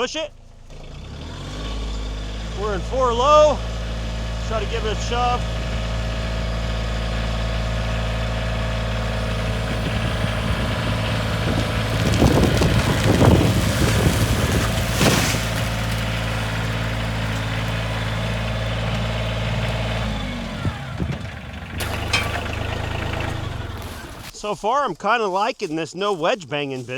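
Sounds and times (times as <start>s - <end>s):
vehicle engine running: 0.0s - 24.4s
tree cracking and snapping: 9.1s - 24.4s.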